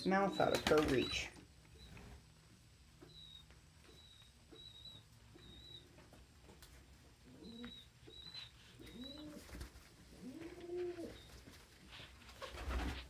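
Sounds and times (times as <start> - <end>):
young pigeons peeping: 0.0 - 13.0
pigeons cooing: 7.2 - 11.4.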